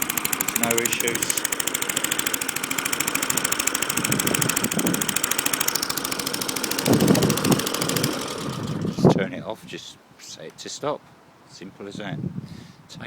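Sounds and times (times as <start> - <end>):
lawn mower engine running: 0.0 - 9.2.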